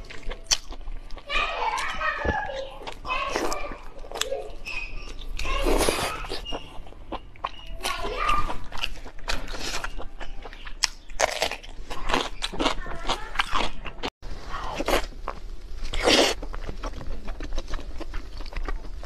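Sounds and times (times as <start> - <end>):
wet chewing and lip smacking: 0.0 - 2.0, 15.2 - 19.0.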